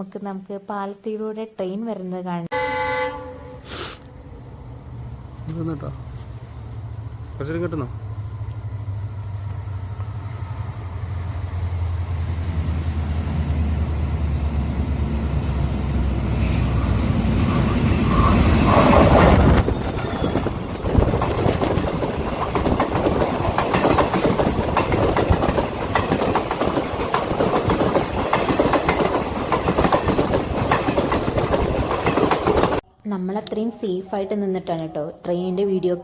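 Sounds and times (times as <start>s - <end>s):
low train drone: 2.5s - 34.4s
train wheels clattering on rails: 15.6s - 32.8s.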